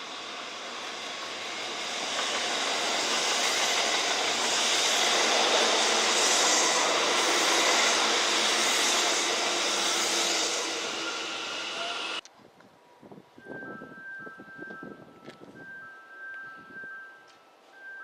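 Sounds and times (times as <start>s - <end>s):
train wheels rushing on rail: 0.0s - 12.2s.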